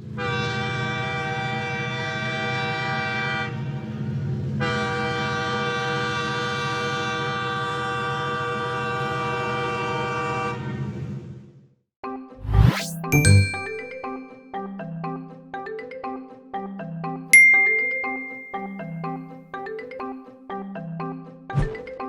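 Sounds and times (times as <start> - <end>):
train horn blasts: 0.2 - 10.8.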